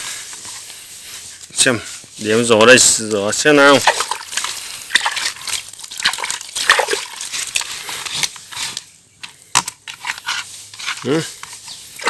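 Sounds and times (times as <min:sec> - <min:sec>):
water sloshing and splashing: 0:02.8 - 0:08.4.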